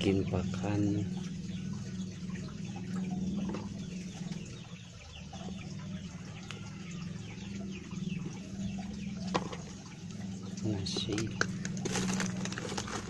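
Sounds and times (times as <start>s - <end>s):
chickens clucking and chirping: 0.0s - 13.0s
steady low hum: 0.0s - 13.0s.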